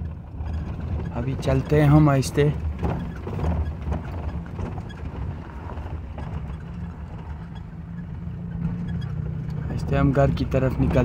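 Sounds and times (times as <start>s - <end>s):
car engine running at low revs: 0.0s - 11.0s
faint ticks and rattles: 0.0s - 11.0s.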